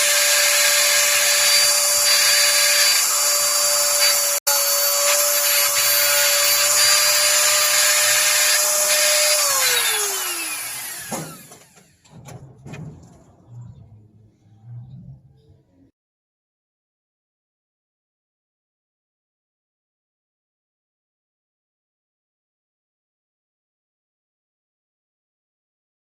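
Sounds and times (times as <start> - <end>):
power tool whining on wood: 0.0 - 12.1.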